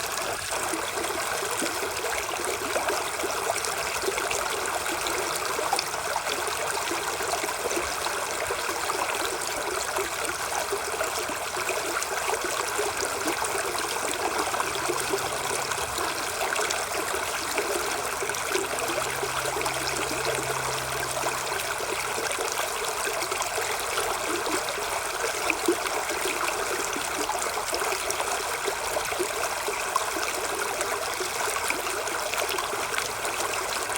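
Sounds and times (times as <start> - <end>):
running water rushing: 0.0 - 33.9.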